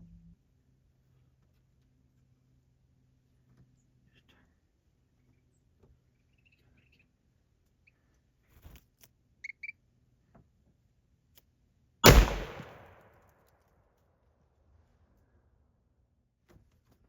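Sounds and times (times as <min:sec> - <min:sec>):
rifle shot with echo: 0:12.0 - 0:13.2.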